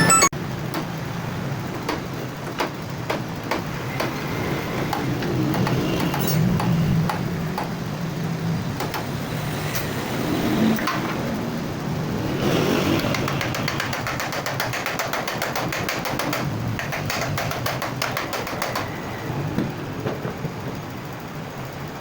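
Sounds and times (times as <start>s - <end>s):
sharp ticks and knocks: 0.7s - 1.0s, 1.7s - 7.8s, 8.8s - 9.2s, 13.0s - 18.9s.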